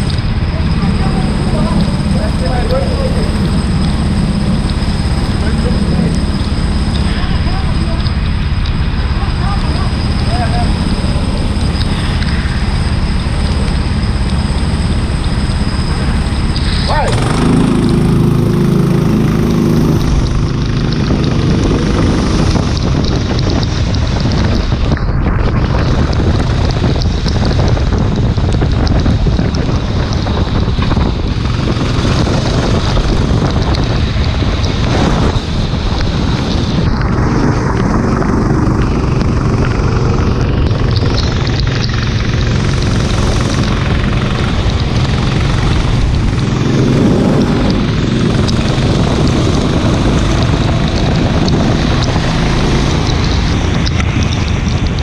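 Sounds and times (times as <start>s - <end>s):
go-kart engine running hard: 0.0s - 55.0s
wind noise on microphone: 0.0s - 55.0s.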